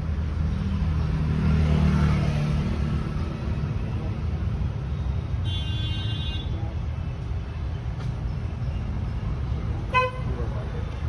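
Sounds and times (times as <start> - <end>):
vehicle engine rumble: 6.4 - 11.0.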